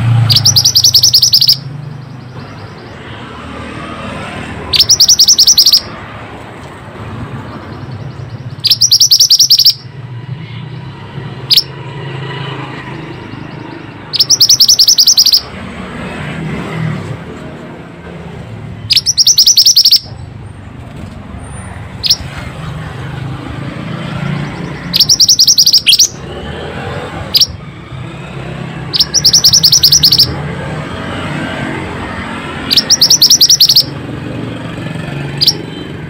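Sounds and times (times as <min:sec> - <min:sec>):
bird chirp: 0:00.1 - 0:03.2, 0:04.7 - 0:05.9, 0:07.3 - 0:10.0, 0:11.5 - 0:11.8, 0:12.9 - 0:15.5, 0:18.8 - 0:20.3, 0:22.0 - 0:22.4, 0:24.0 - 0:26.2, 0:27.3 - 0:27.6, 0:28.9 - 0:30.4, 0:32.6 - 0:34.0, 0:35.4 - 0:35.7
bird high-pitched trills: 0:00.2 - 0:03.1, 0:04.7 - 0:05.9, 0:07.7 - 0:09.9, 0:11.5 - 0:11.8, 0:13.1 - 0:15.5, 0:18.8 - 0:20.1, 0:22.0 - 0:22.3, 0:24.3 - 0:26.2, 0:27.3 - 0:27.6, 0:28.9 - 0:30.4, 0:32.7 - 0:34.0, 0:35.4 - 0:35.7.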